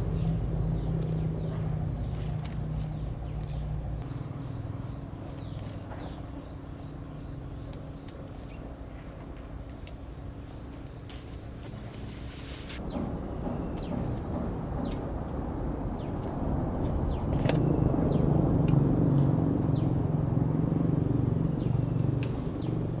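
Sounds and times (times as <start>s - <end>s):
insects chirring: 0.0s - 23.0s
low rumble: 12.1s - 23.0s.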